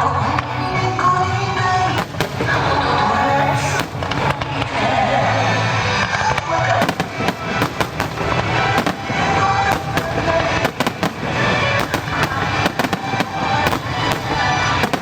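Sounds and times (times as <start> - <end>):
fireworks bursting: 0.0 - 15.0
music: 0.0 - 15.0.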